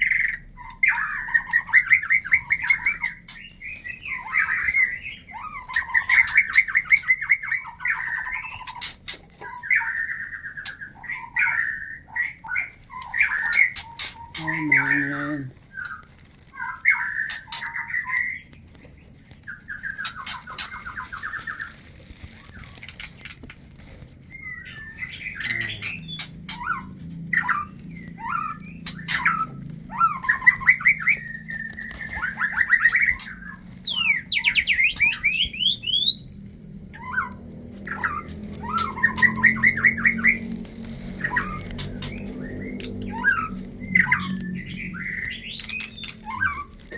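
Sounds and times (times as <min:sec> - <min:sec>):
bird chattering and churring: 0:00.0 - 0:18.5, 0:19.5 - 0:46.9
high sweeping bird whistles: 0:41.2 - 0:46.8.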